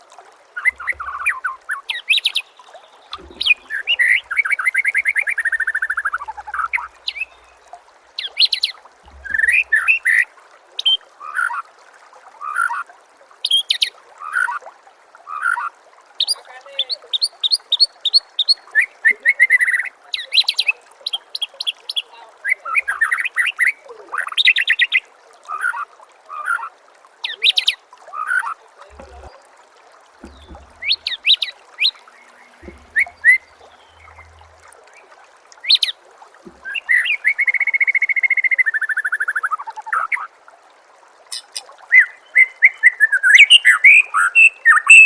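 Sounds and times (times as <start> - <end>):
songbird singing trills and whistles: 16.2 - 25.0, 41.3 - 45.0.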